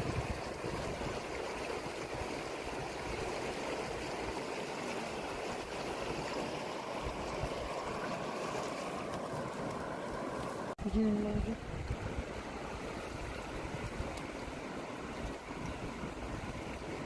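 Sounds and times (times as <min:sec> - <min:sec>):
wind buffeting the microphone: 0:00.0 - 0:04.3, 0:11.2 - 0:17.0
river water rushing: 0:00.0 - 0:10.8, 0:11.6 - 0:17.0.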